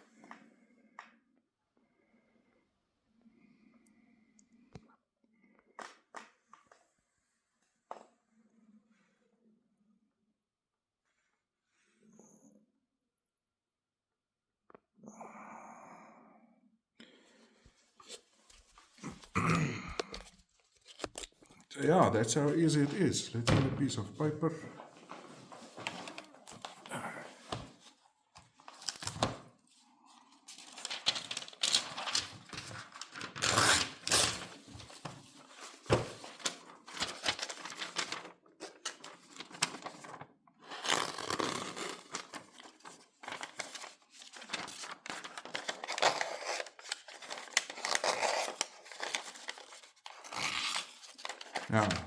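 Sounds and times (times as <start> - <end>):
paper rustling: 17.9 - 52.0.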